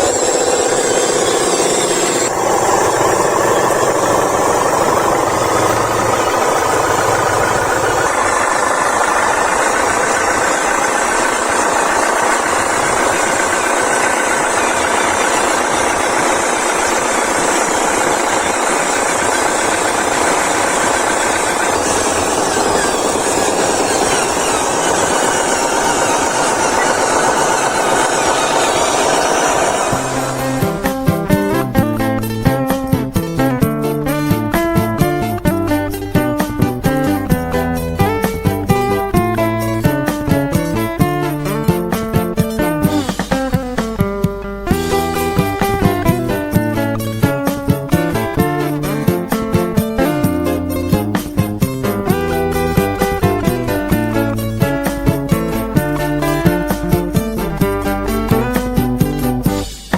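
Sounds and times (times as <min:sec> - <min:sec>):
model excavator mechanical drone: 0:00.0 - 0:59.9.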